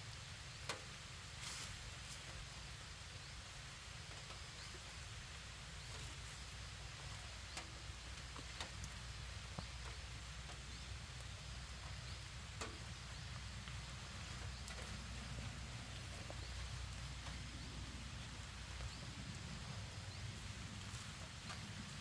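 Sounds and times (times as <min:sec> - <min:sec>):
sickle cutting grass: 0:01.4 - 0:02.4
wind rumbling on microphone: 0:03.2 - 0:22.0.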